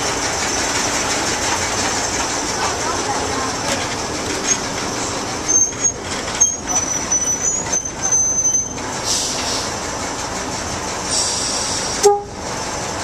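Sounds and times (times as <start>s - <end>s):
train riding along rails: 0.0s - 13.0s
high wheel squeal: 4.4s - 9.8s, 11.1s - 12.4s.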